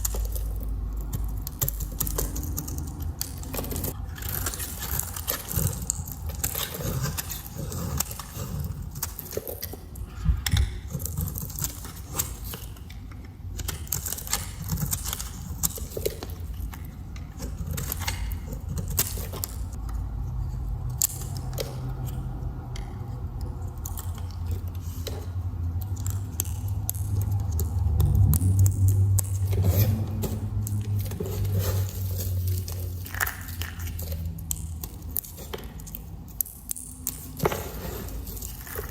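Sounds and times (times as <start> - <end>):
low hum: 19.6 - 35.0.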